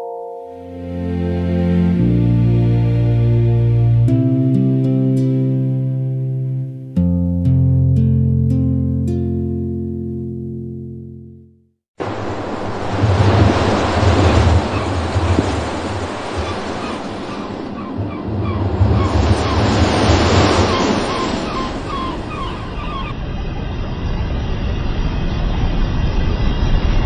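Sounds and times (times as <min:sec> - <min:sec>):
low rumble: 0:12.0 - 0:22.3
steady rushing noise: 0:12.0 - 0:27.0.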